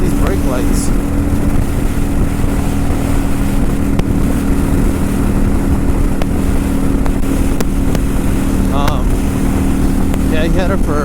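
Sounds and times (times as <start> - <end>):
motorcycle engine hum: 0.0 - 11.0
rushing riding noise: 0.0 - 11.0.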